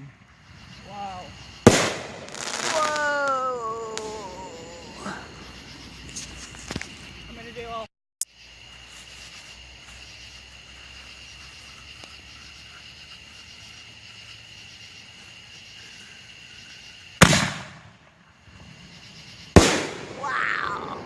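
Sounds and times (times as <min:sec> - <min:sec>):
fireworks bangs: 0:00.0 - 0:07.1, 0:17.2 - 0:21.0.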